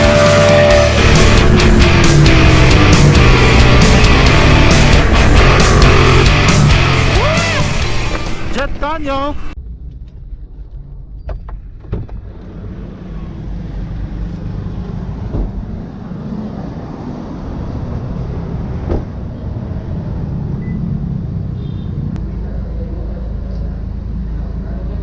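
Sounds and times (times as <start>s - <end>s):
vehicle engine running: 0.0s - 11.2s.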